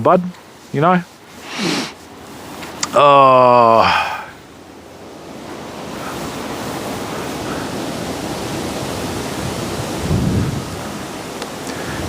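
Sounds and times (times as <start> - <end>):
wind buffeting microphone: 5.0 - 12.0.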